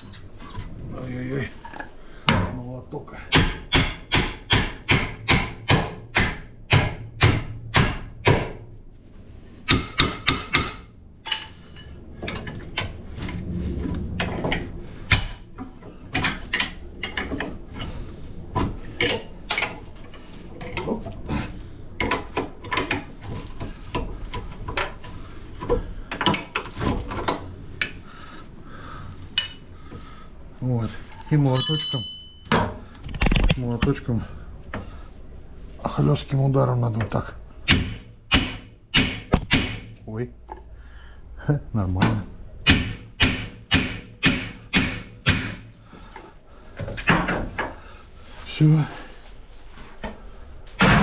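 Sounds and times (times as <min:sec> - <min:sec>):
tools and metal parts clinking: 0:00.0 - 0:02.0, 0:11.2 - 0:12.8, 0:29.4 - 0:29.7, 0:31.2 - 0:33.6
hammer striking steel: 0:03.3 - 0:08.6, 0:09.7 - 0:11.9, 0:31.5 - 0:32.7, 0:37.7 - 0:39.9, 0:42.6 - 0:45.6.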